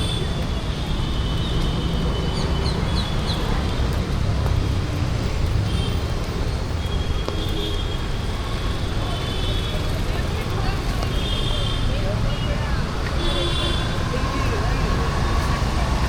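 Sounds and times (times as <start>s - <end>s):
rumble of traffic: 0.0s - 16.0s.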